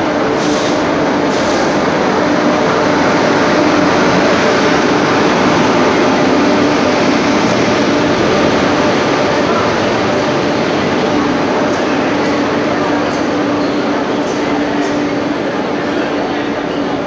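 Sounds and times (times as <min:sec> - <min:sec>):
locomotive hum: 0:00.0 - 0:17.0
train rumbling on rails: 0:00.0 - 0:17.0.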